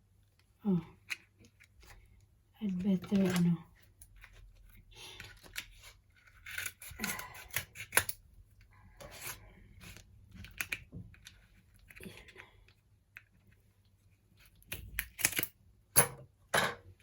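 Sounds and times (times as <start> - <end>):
scissors snipping plastic: 5.2 - 8.2, 14.6 - 15.6
plastic crinkling and clicking: 9.9 - 13.6.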